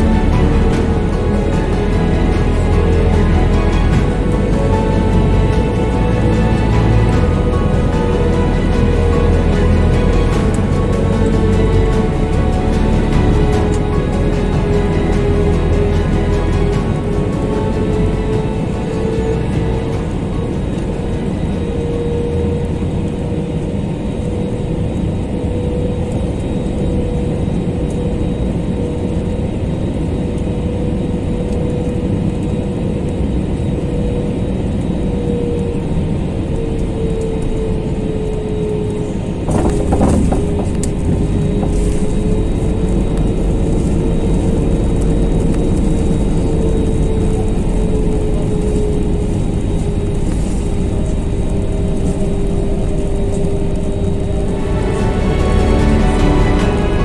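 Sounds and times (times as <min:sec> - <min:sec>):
aircraft cabin engine noise: 0:00.0 - 0:57.0.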